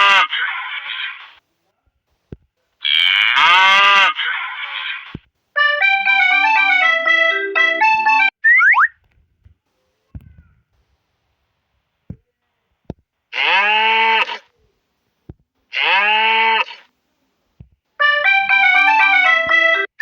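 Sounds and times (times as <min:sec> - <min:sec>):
cow mooing: 0:02.9 - 0:04.3.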